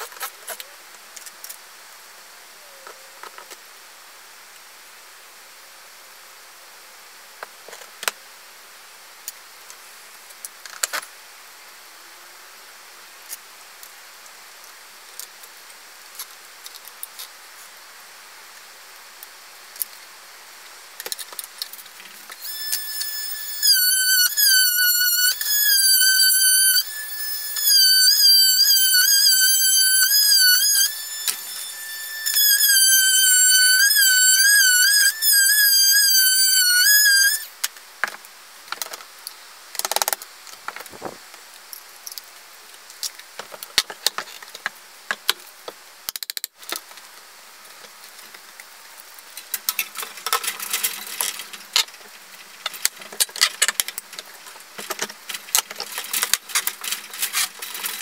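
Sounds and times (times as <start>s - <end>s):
high melody with vibrato: 22.4s - 37.5s.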